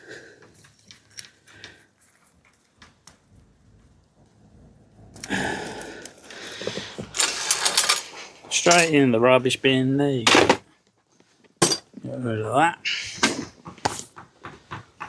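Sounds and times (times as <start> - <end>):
bicycle chain rattling: 7.1 - 8.9.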